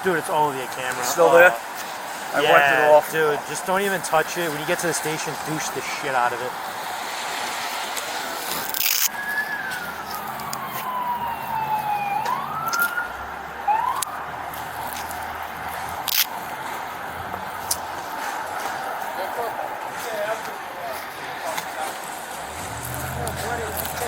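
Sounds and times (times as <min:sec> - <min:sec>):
street noise: 0:00.0 - 0:24.0
emergency siren wailing: 0:09.1 - 0:19.8, 0:22.3 - 0:24.0.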